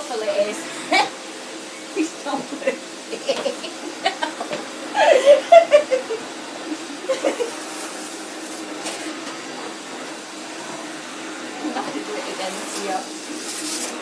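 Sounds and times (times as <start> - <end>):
vacuum cleaner humming: 0.0 - 14.0
man laughing: 3.6 - 7.6.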